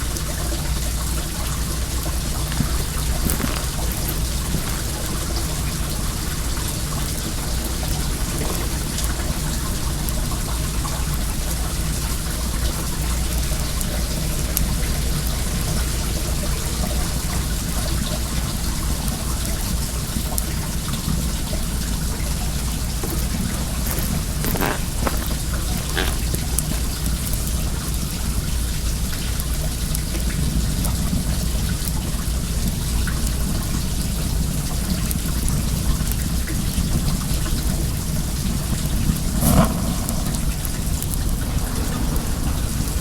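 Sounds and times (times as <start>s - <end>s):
water flowing: 0.1s - 13.0s, 21.2s - 28.9s, 39.3s - 43.0s
bonfire crackling: 0.6s - 43.0s.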